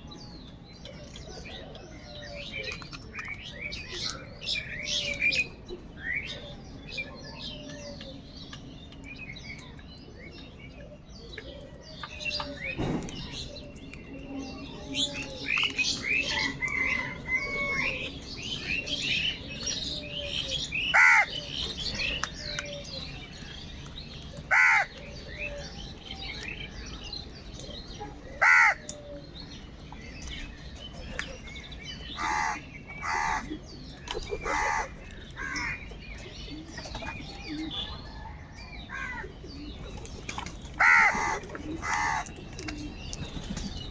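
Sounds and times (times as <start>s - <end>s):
small birds chirping: 0.0s - 43.9s
crows cawing: 20.9s - 21.4s, 24.5s - 25.0s, 28.4s - 28.9s, 32.2s - 33.5s, 34.4s - 35.8s, 40.8s - 42.3s.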